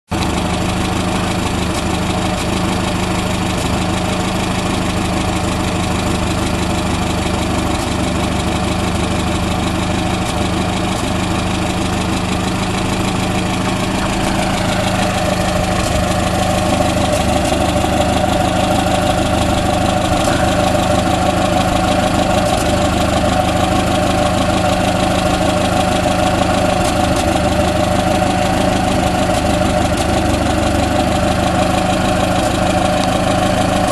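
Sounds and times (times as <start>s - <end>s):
car engine idling: 0.1s - 33.9s.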